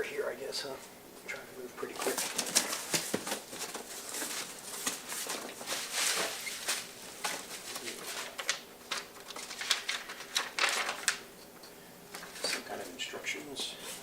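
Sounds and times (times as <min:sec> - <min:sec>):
packaging rustling and crinkling: 0:02.0 - 0:11.2.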